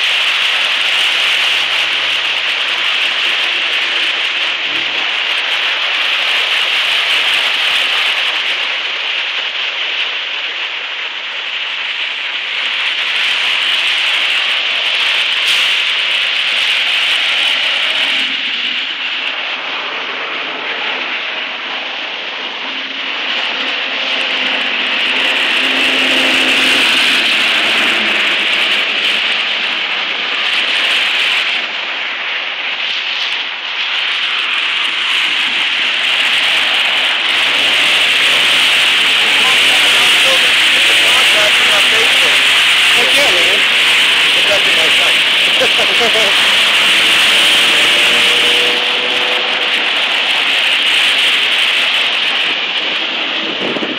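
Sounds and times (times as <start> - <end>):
floodwater rushing: 0.0 - 53.9
vehicle engine hum: 11.9 - 32.8, 34.4 - 53.9.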